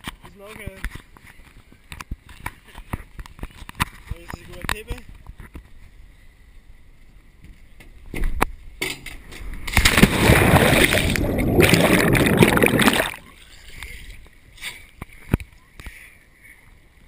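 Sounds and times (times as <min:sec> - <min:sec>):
water splashing and sloshing: 0:09.4 - 0:15.3.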